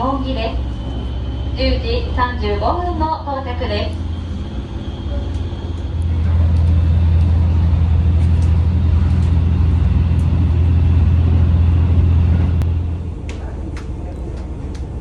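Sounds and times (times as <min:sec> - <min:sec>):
diesel railcar engine drone: 0:00.0 - 0:15.0.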